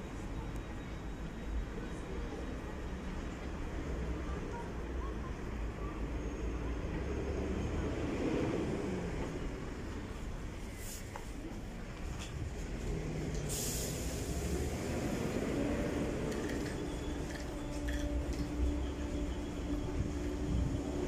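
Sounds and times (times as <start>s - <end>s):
electric train rumbling slowly: 0.0s - 21.0s
brief hiss: 13.4s - 14.6s.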